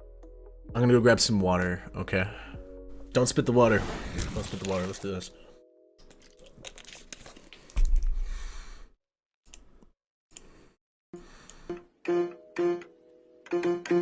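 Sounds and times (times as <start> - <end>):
clicks and handling noises: 6.0 - 8.1.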